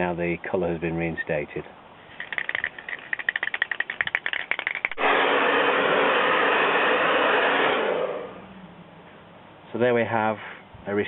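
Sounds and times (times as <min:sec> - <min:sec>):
spray can ball rattling: 0:02.1 - 0:05.0
spray can hissing: 0:02.2 - 0:07.8.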